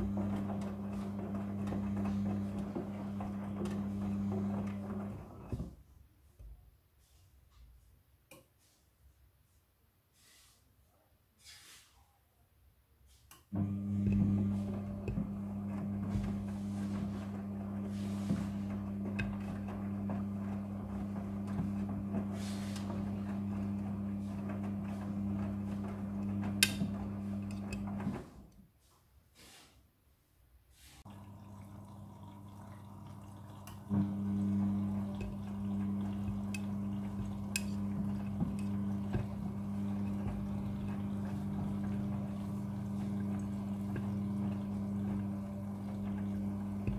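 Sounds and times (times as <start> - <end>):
water flowing through machine: 0.0 - 5.7, 13.6 - 28.4, 31.0 - 46.9
washing machine humming: 0.0 - 5.9, 13.5 - 28.5, 31.0 - 46.9.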